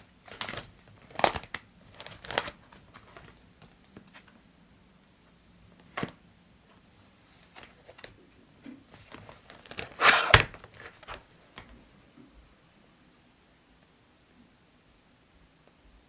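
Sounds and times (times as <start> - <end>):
paper rustling: 0.0 - 4.4, 5.8 - 8.2, 8.9 - 11.3.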